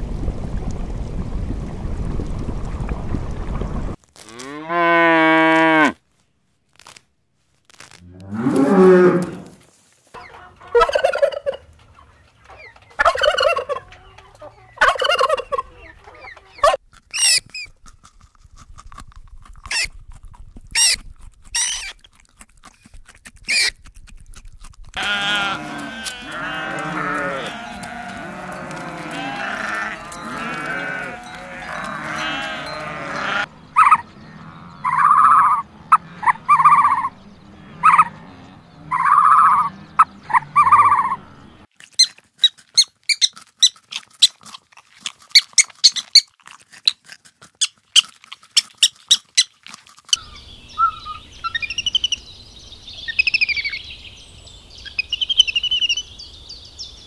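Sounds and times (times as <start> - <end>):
goats bleating: 25.0 - 33.5
high chirping calls: 50.2 - 57.0.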